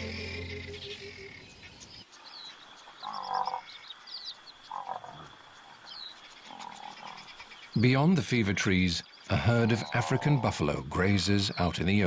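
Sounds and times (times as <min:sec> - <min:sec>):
insect drone: 0:00.0 - 0:07.6
frogs croaking: 0:00.0 - 0:10.6
birds chirping: 0:00.0 - 0:12.0.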